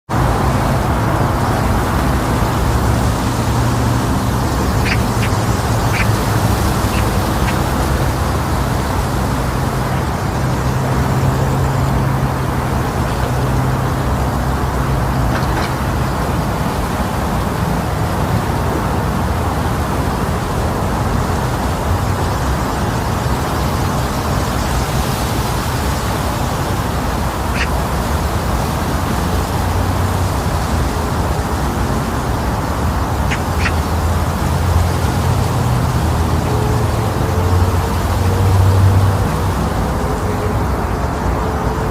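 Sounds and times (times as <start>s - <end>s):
strong wind across microphone: 0.1s - 41.9s
faint short bird calls: 4.4s - 7.9s, 27.5s - 27.7s, 33.3s - 33.9s.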